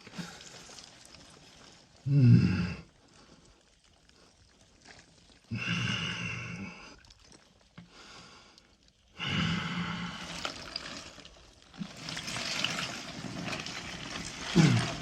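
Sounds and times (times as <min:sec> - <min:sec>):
water swishing: 0:09.8 - 0:15.0.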